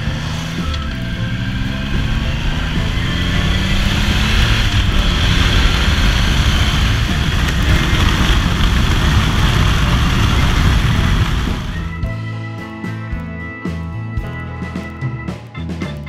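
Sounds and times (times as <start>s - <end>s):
wind noise: 0.0s - 12.1s
motorcycle engine running: 0.0s - 12.2s.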